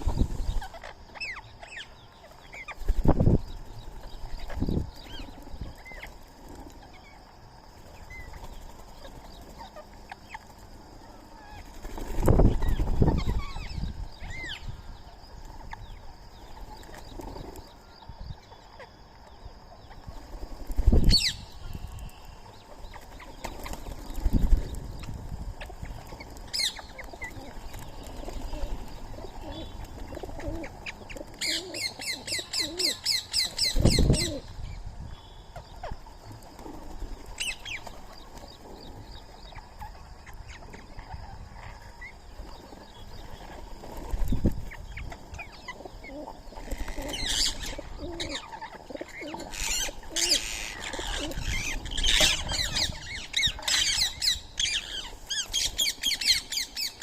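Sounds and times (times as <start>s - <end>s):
birds calling and chirping: 0.0s - 57.0s.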